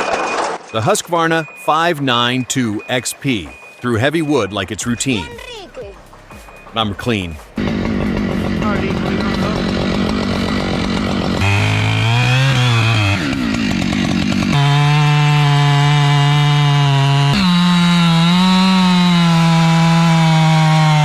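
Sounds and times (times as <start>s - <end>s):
chainsaw cutting wood: 7.6s - 21.0s.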